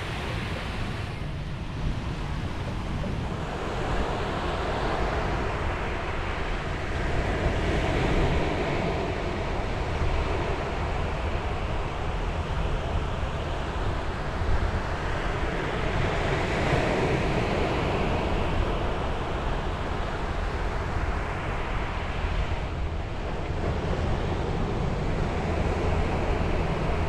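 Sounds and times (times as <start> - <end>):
sea waves breaking on shore: 0.0 - 6.4
wind rumbling on microphone: 0.0 - 27.0.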